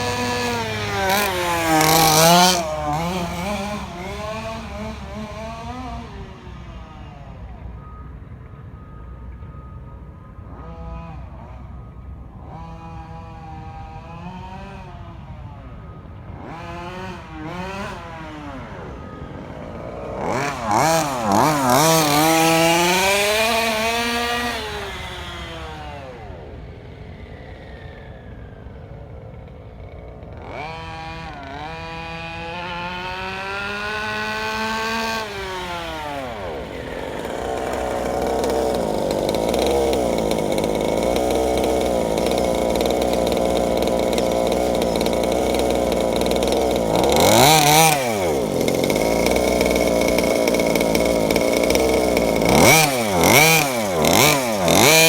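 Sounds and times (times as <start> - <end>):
small two-stroke engine revving: 0.0 - 55.0.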